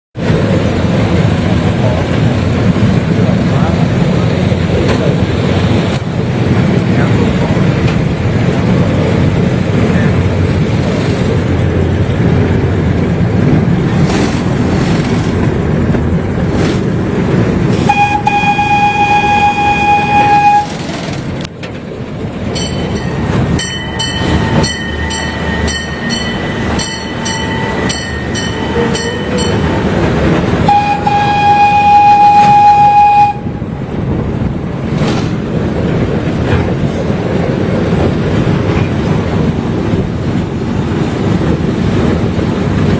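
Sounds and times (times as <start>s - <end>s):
train rumble and wheel clatter: 0.1s - 42.9s
train horn blasts: 17.8s - 20.9s, 27.8s - 29.9s, 30.6s - 33.7s.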